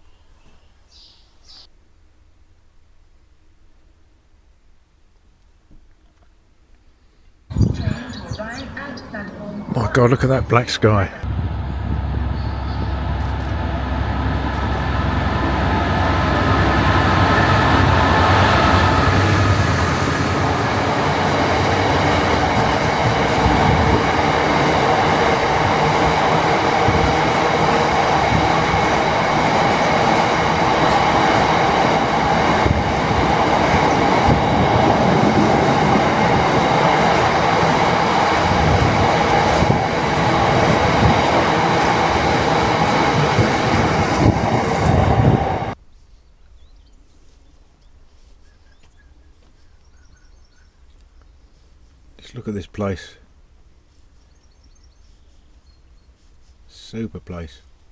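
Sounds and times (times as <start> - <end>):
diesel train engine rumble: 7.5 - 45.8
train wheels: 7.5 - 45.8.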